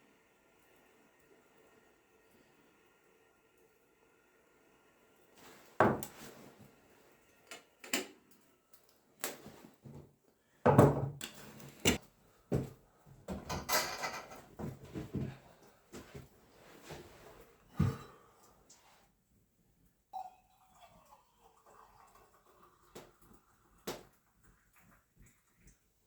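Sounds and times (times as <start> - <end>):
objects knocking and clattering: 5.8 - 6.2, 10.7 - 12.0, 13.3 - 15.4.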